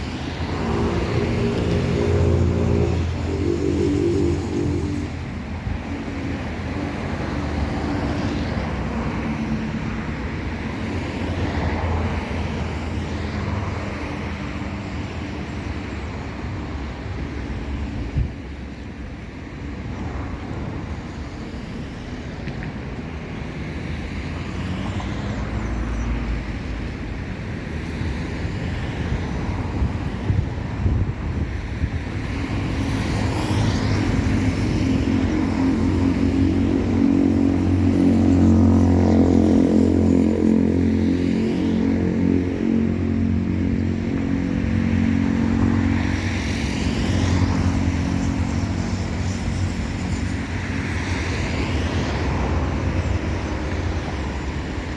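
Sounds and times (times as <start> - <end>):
jet engines passing: 0.0 - 54.9.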